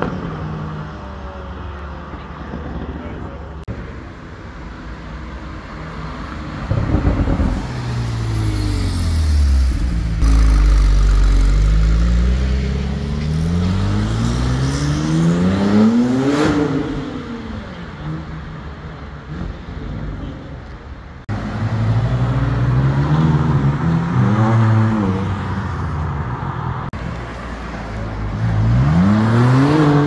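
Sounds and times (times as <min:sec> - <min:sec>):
car engine accelerating: 0:06.7 - 0:17.1.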